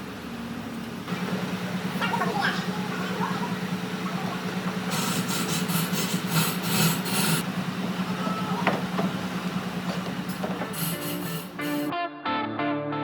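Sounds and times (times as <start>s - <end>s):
steady low hum: 1.1s - 11.9s
rubbing strokes on wood: 9.8s - 11.9s.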